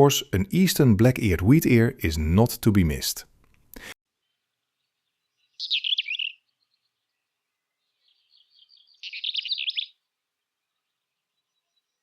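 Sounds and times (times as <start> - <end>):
bird singing scratchy warble: 4.9 - 10.0.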